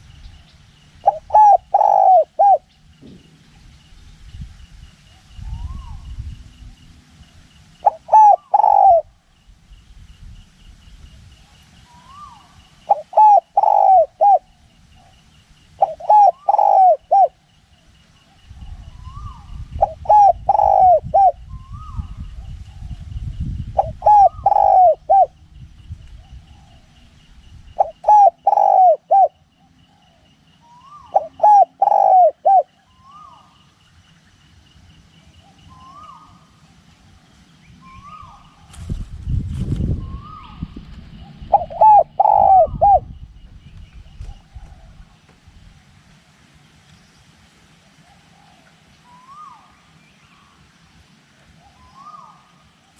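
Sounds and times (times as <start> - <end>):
wind rumbling on microphone: 0.0 - 14.6, 18.2 - 28.6, 37.6 - 46.2
dove cooing: 1.0 - 3.2, 7.8 - 9.2, 11.4 - 15.2, 15.8 - 17.5, 18.3 - 22.1, 23.8 - 25.4, 27.7 - 33.6, 35.4 - 36.6, 40.0 - 43.2, 47.9 - 49.8, 51.5 - 52.6.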